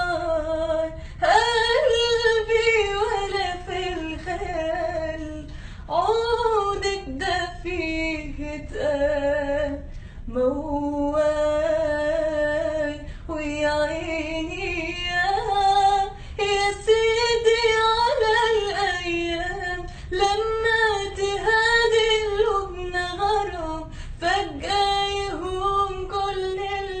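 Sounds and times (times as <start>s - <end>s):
woman singing: 0.0s - 27.0s.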